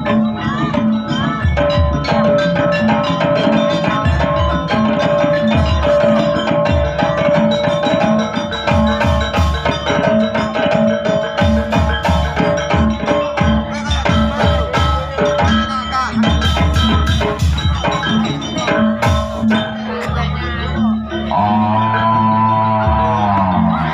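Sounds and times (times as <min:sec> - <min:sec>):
drum beats: 0:00.0 - 0:23.9
tuned metal percussion: 0:00.0 - 0:23.9.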